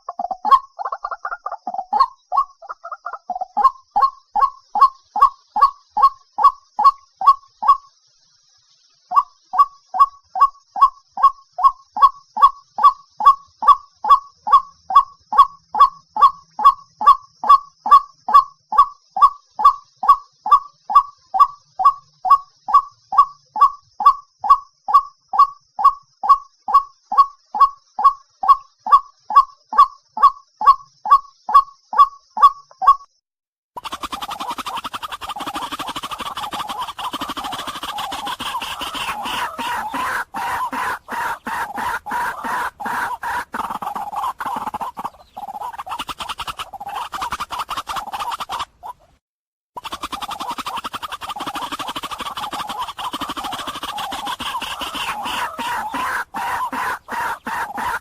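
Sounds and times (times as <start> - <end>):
bird harsh wak calls: 33.8 - 49.1, 49.8 - 58.0.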